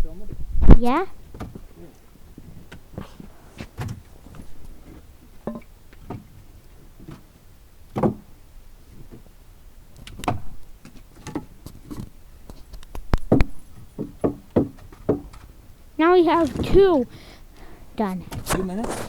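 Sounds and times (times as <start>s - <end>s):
wood pieces knocking and clacking: 10.0s - 15.5s.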